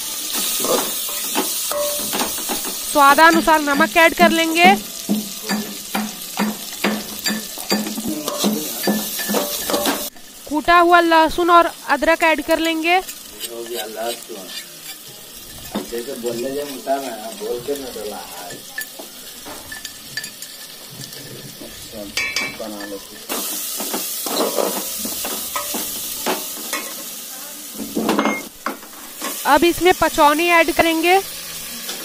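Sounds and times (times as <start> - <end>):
food sizzling in oil: 0.0 - 32.0
spoon scraping pot: 13.0 - 17.8.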